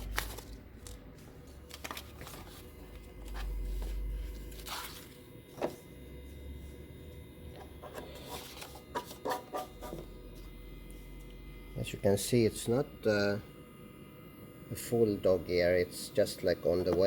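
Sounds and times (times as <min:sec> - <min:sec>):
paper rustling: 0:00.0 - 0:05.8, 0:08.2 - 0:09.6.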